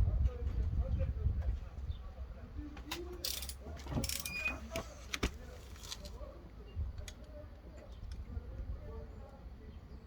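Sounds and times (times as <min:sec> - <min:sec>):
metal parts clicking: 0:03.2 - 0:04.4.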